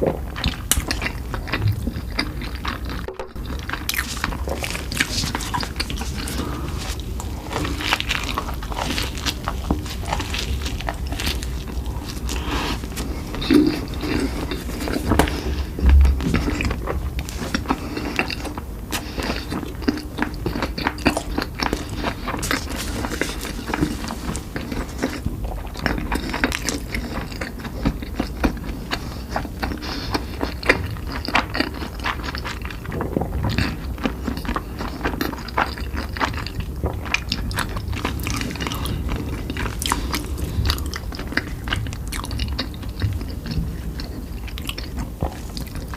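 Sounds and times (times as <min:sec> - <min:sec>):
chewing and crunching food: 0:00.0 - 0:45.9
low thump: 0:15.8 - 0:16.5.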